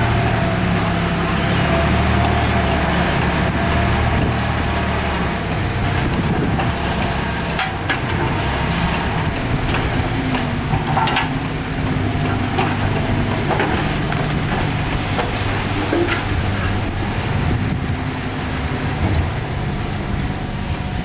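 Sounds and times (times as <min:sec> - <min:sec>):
heavy machinery diesel engine: 0:00.0 - 0:21.0
sharp clanks and crunches: 0:02.2 - 0:17.4.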